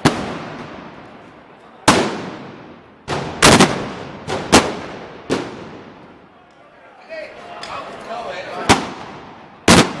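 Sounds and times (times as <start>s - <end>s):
black powder bangs echoing: 0.0s - 1.0s, 1.8s - 6.1s, 8.7s - 10.0s.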